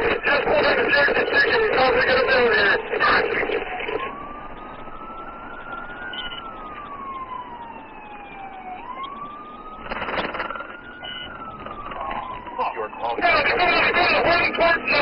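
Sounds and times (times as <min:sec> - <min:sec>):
police siren wailing: 0:00.0 - 0:15.0
second siren tone: 0:03.7 - 0:14.2.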